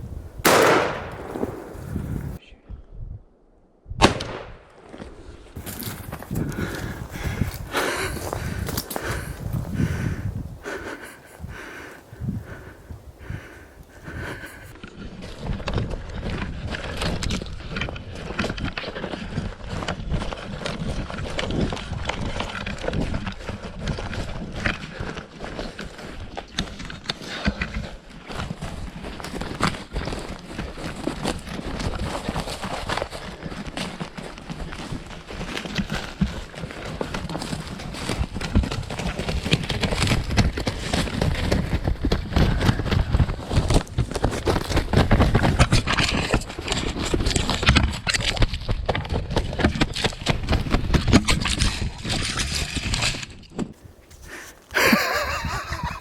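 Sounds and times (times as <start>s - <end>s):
footsteps crunching through dry brush: 0.0s - 2.4s, 4.8s - 27.2s, 28.0s - 52.2s, 53.7s - 56.0s
rustling brush: 1.1s - 2.4s, 53.8s - 56.0s.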